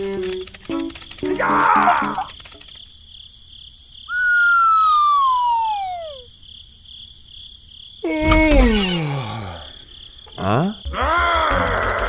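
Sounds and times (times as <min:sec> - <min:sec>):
faint cricket-like chirping: 0:00.0 - 0:12.0
cartoon descending whistle: 0:04.1 - 0:06.3.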